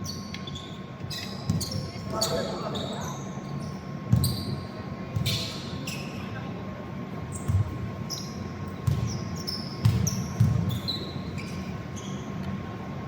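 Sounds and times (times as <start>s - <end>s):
sneakers squeaking on floor: 0.0s - 6.4s, 7.3s - 12.4s
basketball bouncing on court: 1.4s - 2.4s, 4.1s - 5.6s, 7.4s - 11.3s.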